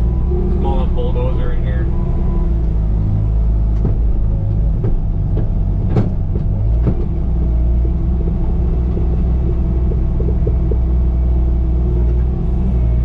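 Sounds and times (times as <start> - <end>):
diesel loader engine running: 0.0 - 13.0
sharp knocks and clanks: 3.7 - 10.9.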